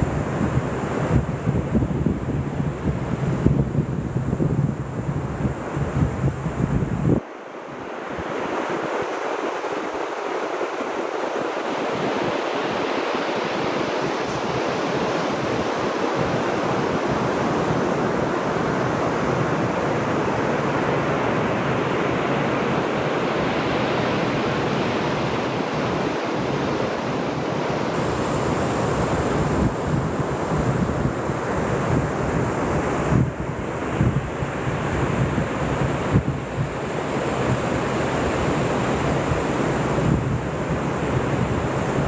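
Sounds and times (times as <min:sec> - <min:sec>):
wind buffeting microphone: 0:00.0 - 0:07.2, 0:24.4 - 0:42.0
ocean surf washing ashore: 0:00.0 - 0:42.0.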